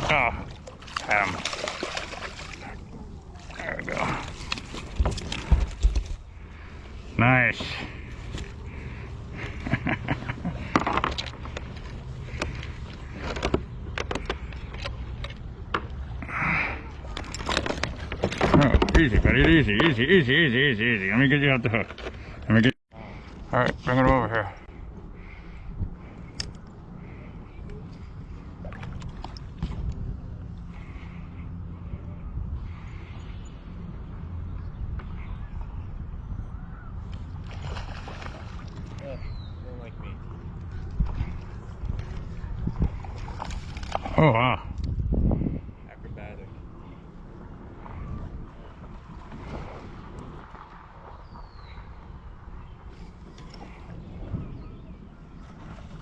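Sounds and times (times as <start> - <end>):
water splashing: 0.0 - 5.8, 37.4 - 39.0
fishing gear clicking and knocking: 4.0 - 6.2, 10.6 - 16.0, 17.2 - 20.0
faint bird calls: 30.6 - 37.4.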